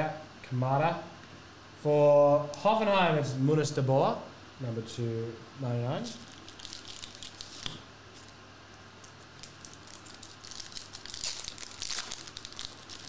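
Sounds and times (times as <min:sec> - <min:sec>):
foil pack tearing and crinkling: 0:06.1 - 0:13.0.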